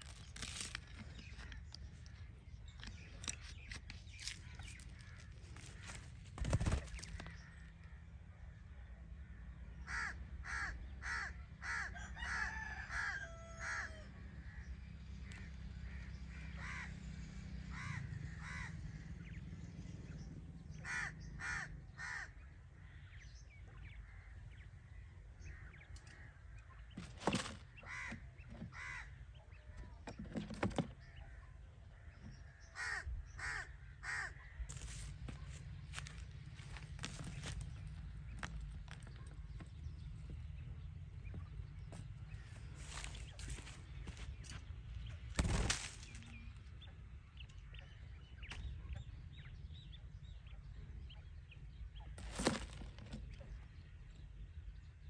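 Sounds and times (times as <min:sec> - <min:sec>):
bird cawing: 0:09.2 - 0:19.2, 0:20.7 - 0:29.6, 0:31.0 - 0:39.6
steady low rumble: 0:31.6 - 0:52.3.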